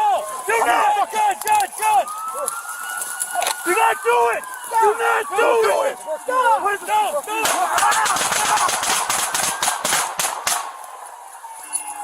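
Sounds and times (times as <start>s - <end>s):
people shouting: 0.0s - 12.0s
rapid gunshots: 7.4s - 10.8s.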